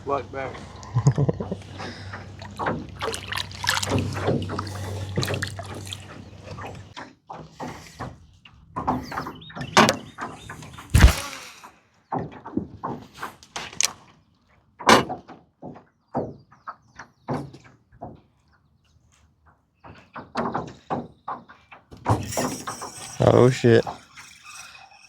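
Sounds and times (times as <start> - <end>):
loud thump: 10.9 - 11.6.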